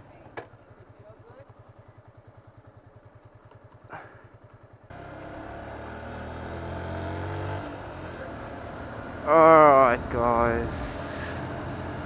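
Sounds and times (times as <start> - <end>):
motorcycle engine idling: 0.0 - 6.6, 7.6 - 12.0
loud engine: 4.9 - 12.0.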